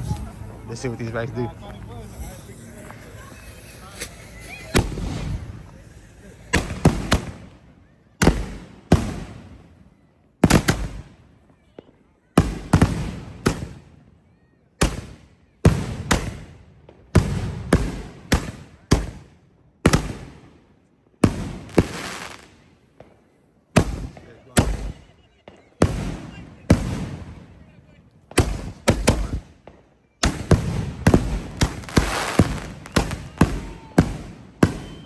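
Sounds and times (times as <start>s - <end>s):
firework shells banging: 0.0s - 9.6s, 21.2s - 35.0s.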